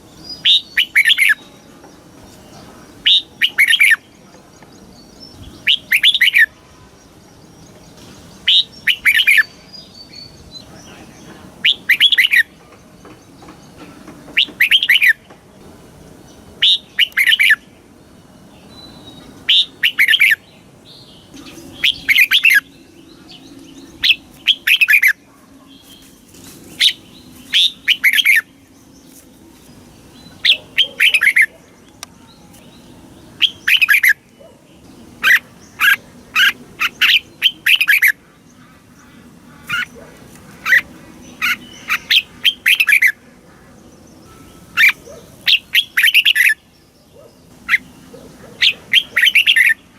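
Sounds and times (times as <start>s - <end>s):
bird singing short loud phrases: 18.8s - 25.2s.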